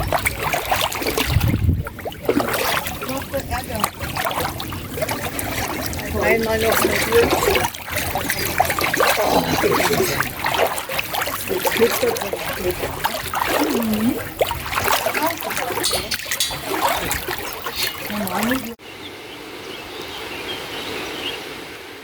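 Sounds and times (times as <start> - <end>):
water splashing and trickling: 0.0 - 18.8.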